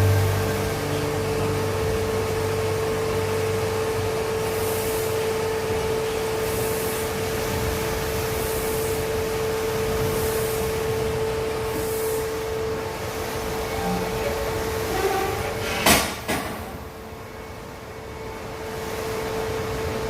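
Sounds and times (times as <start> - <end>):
machinery motor hum: 0.0 - 20.0.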